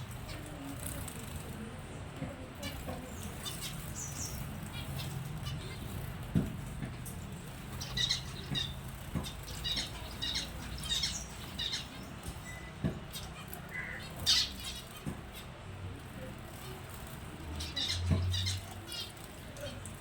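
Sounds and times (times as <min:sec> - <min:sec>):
finches chirping: 0:02.6 - 0:06.2, 0:06.9 - 0:15.6, 0:16.5 - 0:20.0.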